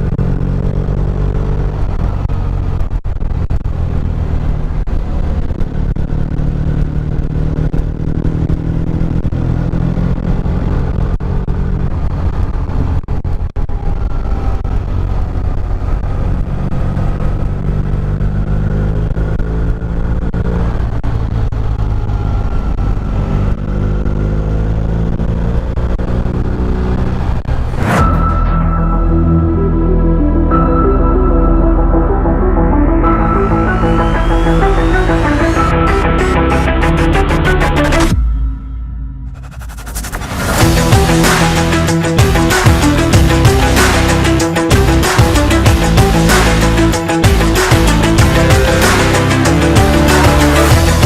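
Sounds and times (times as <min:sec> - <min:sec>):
motorcycle engine running: 0:00.0 - 0:13.0, 0:40.6 - 0:51.0
music: 0:27.8 - 0:51.0.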